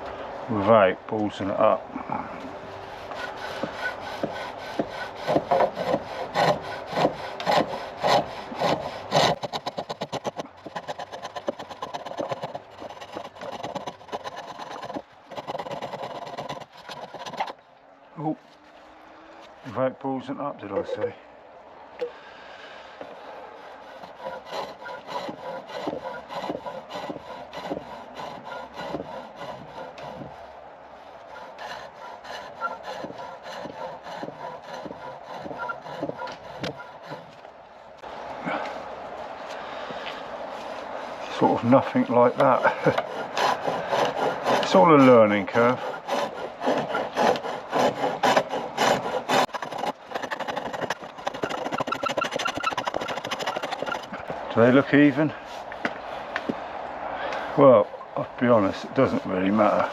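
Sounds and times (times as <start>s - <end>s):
chisel scraping spinning wood: 2.9s - 17.6s, 23.0s - 30.5s, 31.2s - 37.4s, 40.6s - 56.0s
light rapid clicking and rubbing: 9.2s - 17.6s, 49.4s - 54.4s.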